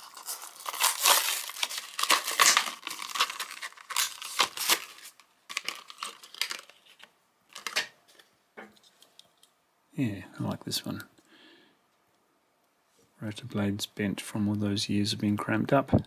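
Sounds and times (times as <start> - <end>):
card tearing: 0.0 - 7.9
plastic packaging crinkling: 0.0 - 8.3.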